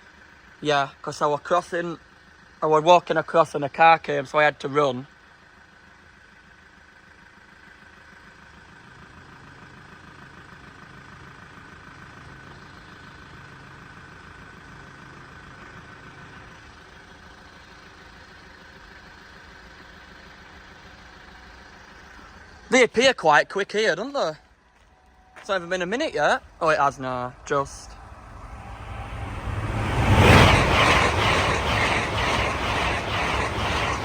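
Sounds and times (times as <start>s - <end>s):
low engine rumble: 23.7s - 34.0s.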